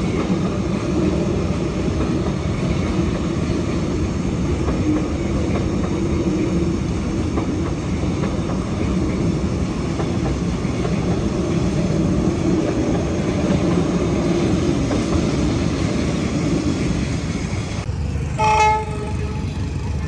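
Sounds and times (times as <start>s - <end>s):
train rumbling past: 0.0s - 20.0s
short train horn toot: 18.4s - 19.7s.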